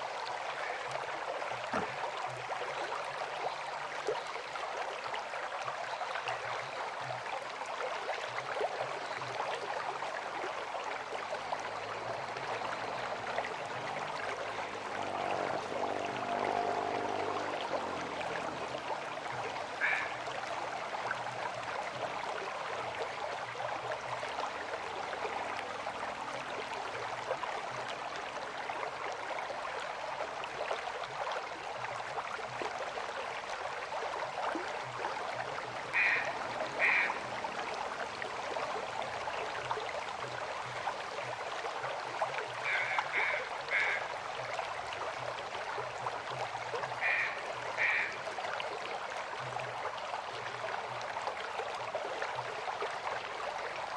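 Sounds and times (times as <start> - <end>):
river water flowing: 0.0 - 53.9
short animal calls: 19.8 - 20.2, 36.0 - 37.2, 42.6 - 44.0, 47.0 - 48.1.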